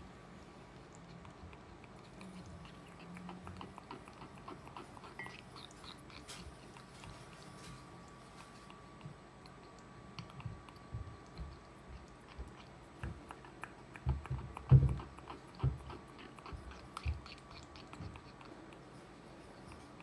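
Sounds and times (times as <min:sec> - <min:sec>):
parrot chewing and biting: 0:00.3 - 0:20.0.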